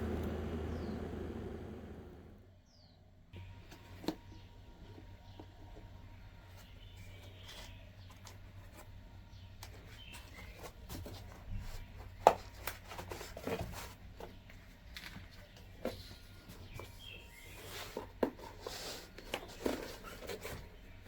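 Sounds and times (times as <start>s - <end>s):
low steady hum: 0.0s - 7.3s.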